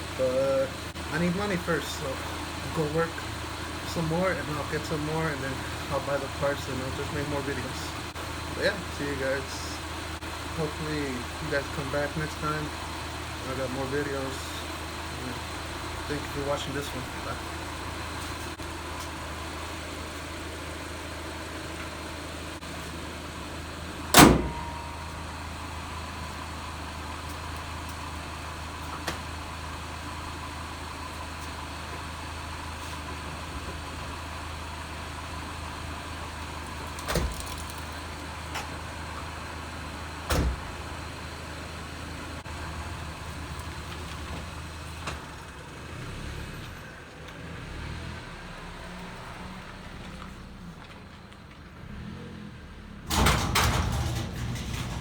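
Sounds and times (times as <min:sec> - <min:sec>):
car engine idling: 0:00.0 - 0:55.0
loud thump: 0:24.1 - 0:25.0.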